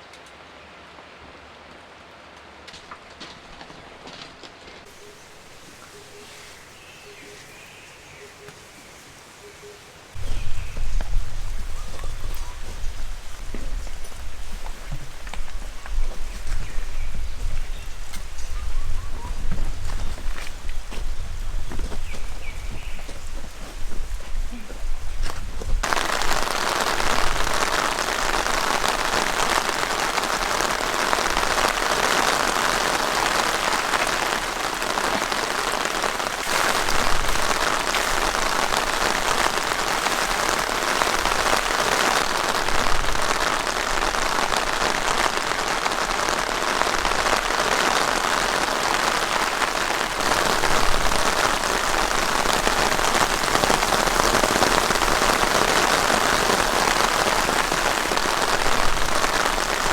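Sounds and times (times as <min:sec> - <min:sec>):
heavy rain on a tent: 0:00.0 - 0:59.9.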